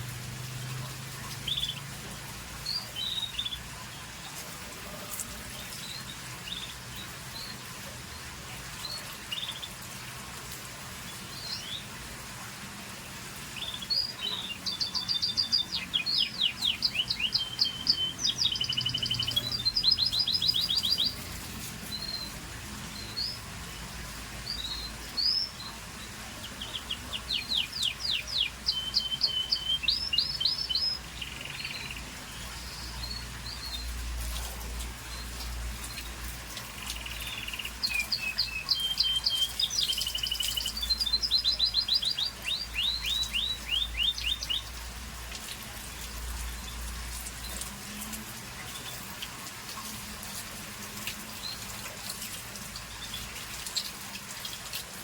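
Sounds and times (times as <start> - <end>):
canary chirping and trilling: 13.6 - 22.4, 24.5 - 35.3, 35.9 - 44.7.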